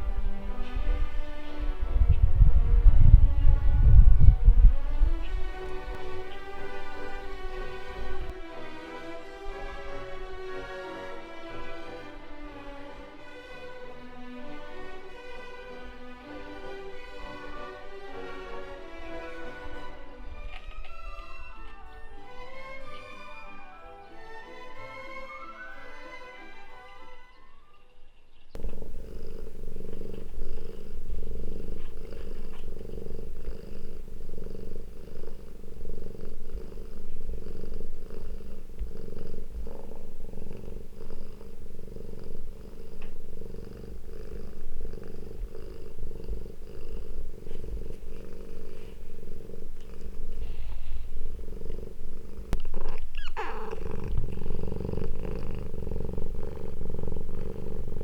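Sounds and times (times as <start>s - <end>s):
cat purring: 0.0s - 23.6s, 28.4s - 58.0s
cat meowing: 52.5s - 54.7s.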